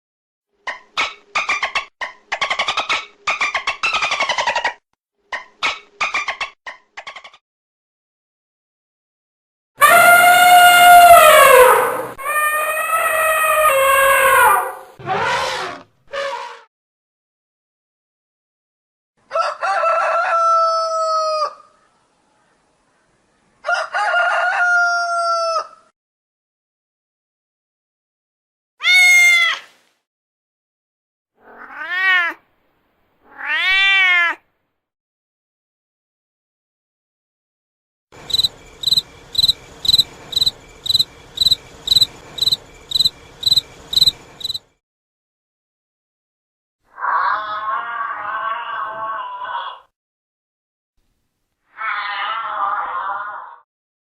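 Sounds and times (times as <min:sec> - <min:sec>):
rooster crowing: 0:09.8 - 0:15.0, 0:19.3 - 0:21.7, 0:23.6 - 0:25.8
cricket chirping: 0:38.2 - 0:44.7.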